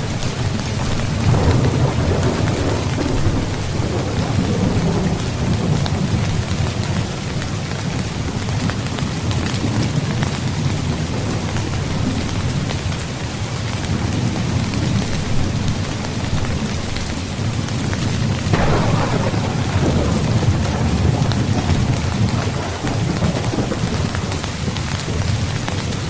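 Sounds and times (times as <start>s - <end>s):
low rolling thunder: 0.0s - 7.9s, 18.0s - 26.0s
rain pattering on a tent: 0.0s - 26.0s.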